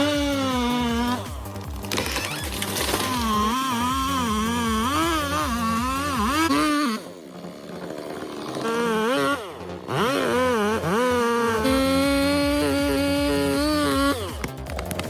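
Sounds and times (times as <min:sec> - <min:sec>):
chainsaw engine revving: 0:00.0 - 0:15.0.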